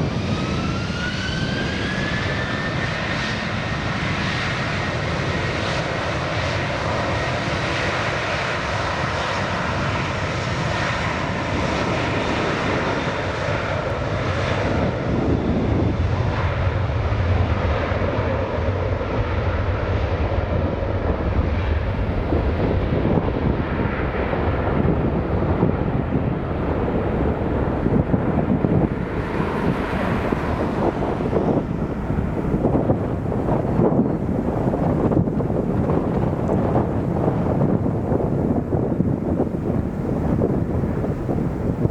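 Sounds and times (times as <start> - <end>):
faint jet whine: 0.0 - 41.9
jet engines roaring: 0.0 - 41.9
deep low rumble: 17.4 - 41.9.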